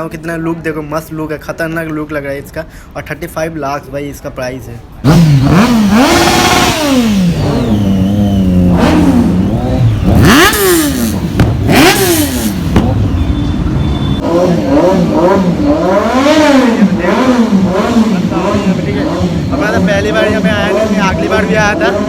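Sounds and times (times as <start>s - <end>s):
motorcycle engine revving: 5.0s - 22.0s.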